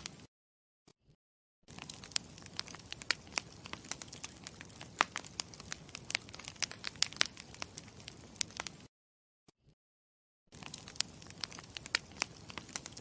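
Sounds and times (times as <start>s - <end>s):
campfire hissing: 1.7s - 8.9s, 10.6s - 13.0s
fire popping and snapping: 1.7s - 8.9s, 10.5s - 13.0s.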